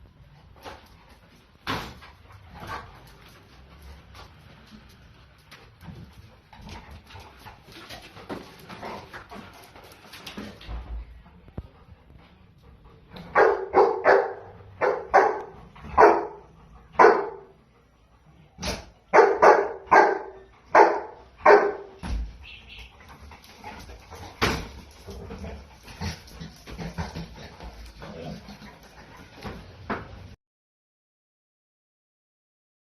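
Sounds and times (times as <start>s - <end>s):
dog barking: 13.3s - 17.6s, 18.6s - 22.0s.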